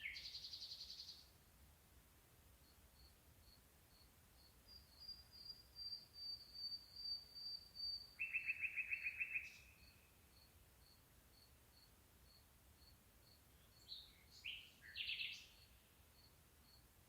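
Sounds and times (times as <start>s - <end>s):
cricket chirping faintly: 0.0s - 17.0s
low rapid insect trill: 2.5s - 14.4s, 15.4s - 17.0s.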